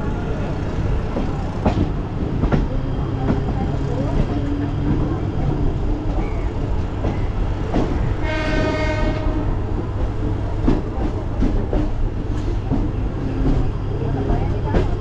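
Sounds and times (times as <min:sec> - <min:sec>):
train low rumble: 0:00.0 - 0:15.0
train horn: 0:08.2 - 0:09.6.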